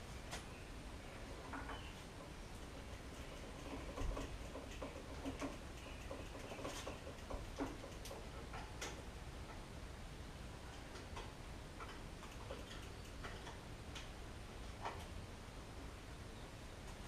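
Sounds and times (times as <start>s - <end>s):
light clicks and ticks: 1.5s - 9.6s, 10.7s - 14.2s.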